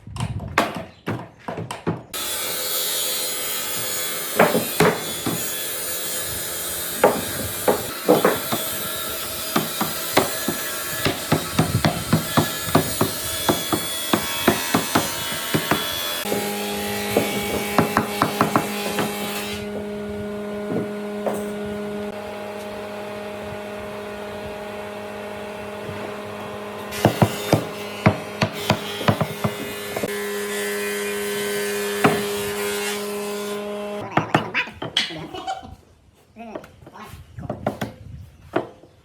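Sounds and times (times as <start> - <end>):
machine hum: 19.1 - 27.1.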